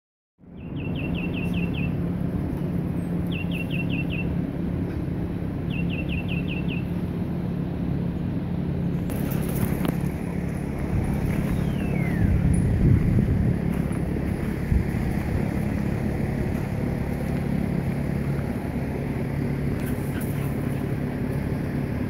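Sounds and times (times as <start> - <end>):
songbird singing: 0.4 - 4.4, 5.6 - 7.2, 9.1 - 22.0
low hum and rumble: 0.4 - 22.0.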